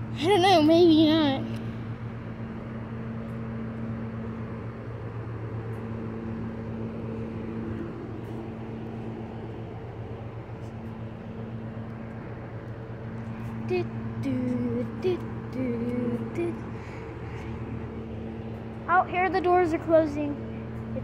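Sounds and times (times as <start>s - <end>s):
diesel train idling: 0.0s - 21.0s.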